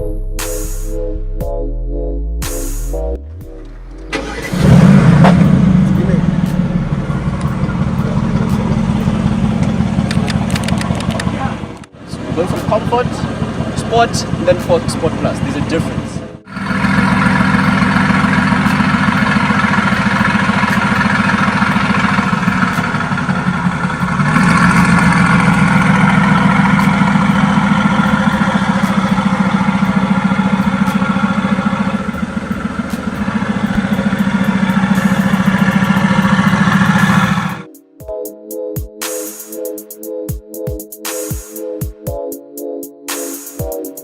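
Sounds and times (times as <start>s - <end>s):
car engine idling: 3.2s - 37.7s.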